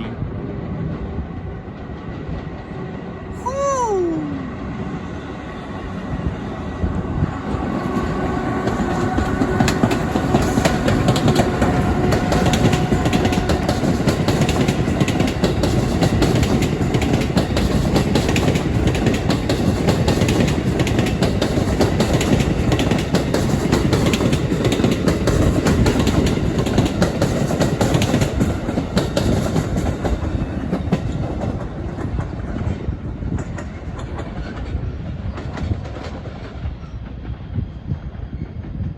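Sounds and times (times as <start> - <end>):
train wheels clacking on rails: 7.4 - 38.9.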